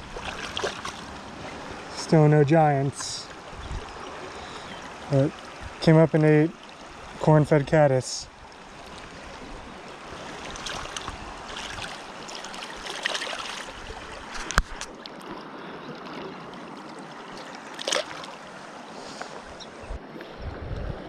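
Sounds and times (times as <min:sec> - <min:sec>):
river flowing: 0:00.0 - 0:20.4
wind rumble on microphone: 0:03.5 - 0:04.0, 0:19.5 - 0:21.0.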